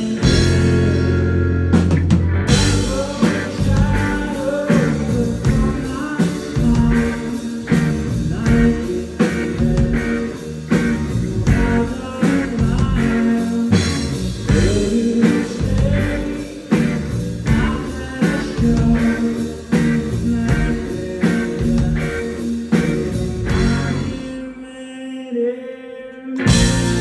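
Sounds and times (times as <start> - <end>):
drums and cymbals crashing: 0.0 - 1.2, 1.8 - 24.3, 26.4 - 27.0
live rock band playing: 0.0 - 24.3, 26.4 - 27.0
electric guitar lines: 0.0 - 24.4, 26.4 - 27.0.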